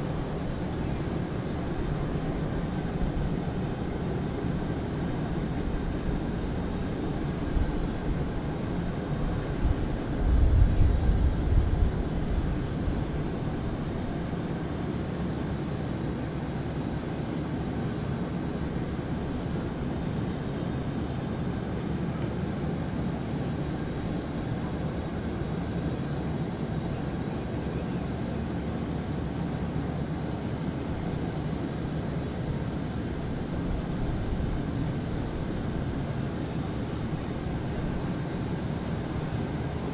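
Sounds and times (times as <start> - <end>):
wind buffeting microphone: 9.5 - 13.6.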